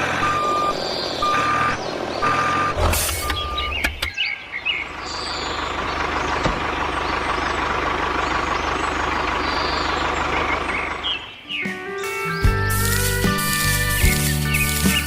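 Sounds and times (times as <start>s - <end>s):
engine chugging with rattle: 4.9s - 11.2s.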